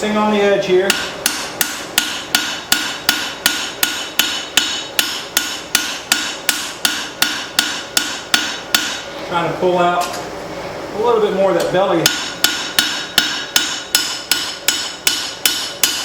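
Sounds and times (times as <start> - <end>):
hammer striking steel on anvil: 0.9 - 9.1, 12.0 - 16.0.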